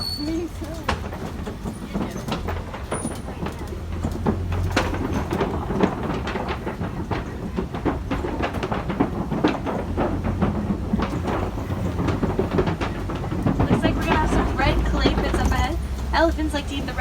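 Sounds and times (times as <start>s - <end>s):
truck rumbling: 0.0s - 17.0s
wooden bridge knocking and creaking: 0.0s - 17.0s.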